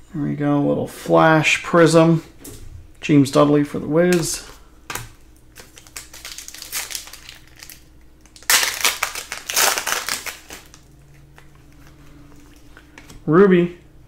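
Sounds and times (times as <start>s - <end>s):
card pack wrapper crinkling: 5.4s - 12.6s.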